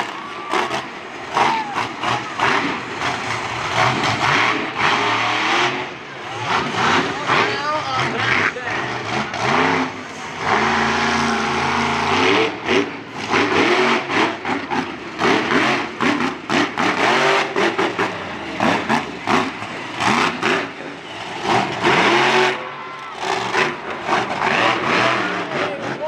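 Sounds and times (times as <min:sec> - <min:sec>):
truck engine revving hard: 0:00.0 - 0:26.0.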